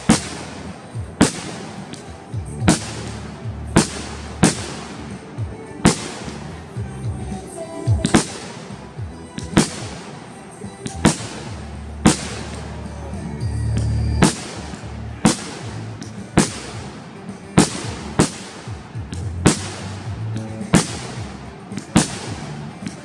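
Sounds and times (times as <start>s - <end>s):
fireworks bangs: 0.0s - 23.0s
music playing: 0.0s - 23.0s.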